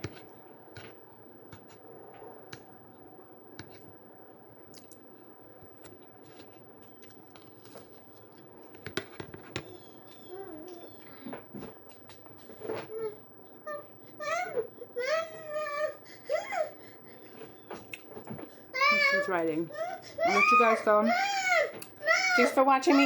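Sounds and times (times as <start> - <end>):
faint chewing of food: 4.6 - 13.0, 17.2 - 18.7.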